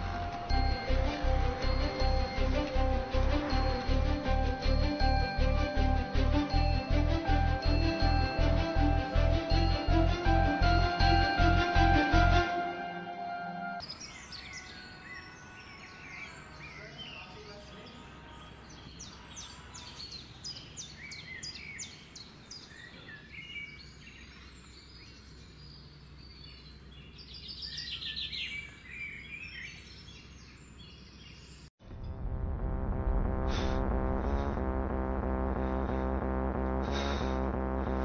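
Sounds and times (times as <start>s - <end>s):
music: 0.0s - 17.9s, 31.9s - 38.0s
small birds chirping: 13.8s - 31.7s
steady low hum: 31.9s - 38.0s.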